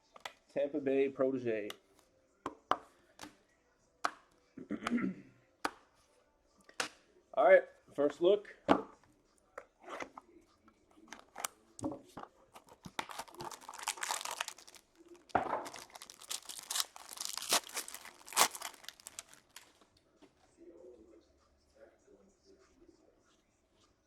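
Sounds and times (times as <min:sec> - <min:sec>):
wrapper tearing and crinkling: 0:12.6 - 0:19.8.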